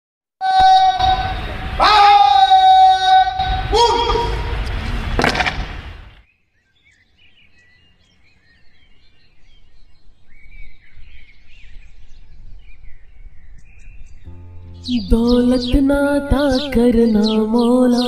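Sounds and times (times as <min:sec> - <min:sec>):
loud drawn-out pitched call: 0:00.4 - 0:06.2
birds chirping quietly: 0:00.5 - 0:18.0
sharp crack: 0:00.6 - 0:06.2.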